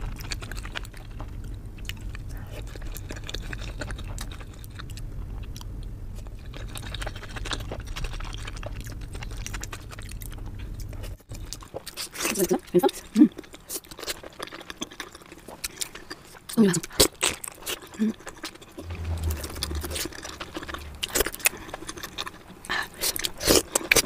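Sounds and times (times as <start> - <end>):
wet chewing clicks and smacks: 0.0 - 18.7
low steady hum: 18.8 - 22.9.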